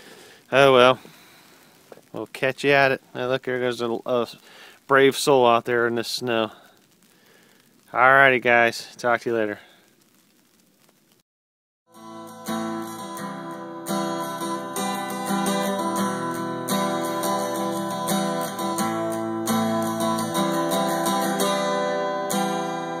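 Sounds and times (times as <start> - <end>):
acoustic guitar strumming: 11.9 - 23.0.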